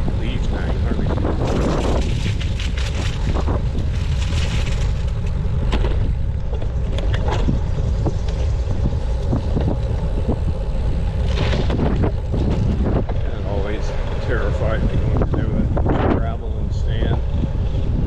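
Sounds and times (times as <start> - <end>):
bicycle road noise: 0.0 - 18.0
wind rumbling on microphone: 0.0 - 18.0
small crackles and clicks: 1.4 - 7.5.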